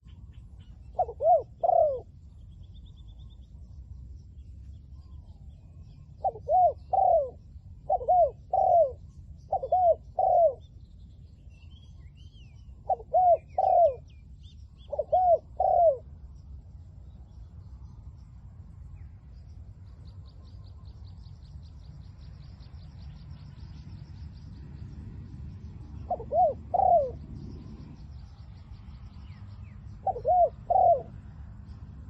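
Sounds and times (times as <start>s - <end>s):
low steady rumble: 0.0s - 32.0s
small birds chirping: 0.0s - 32.0s
dove cooing: 0.8s - 2.2s, 5.9s - 10.6s, 12.8s - 14.1s, 14.8s - 16.2s, 25.9s - 28.0s, 30.0s - 31.2s.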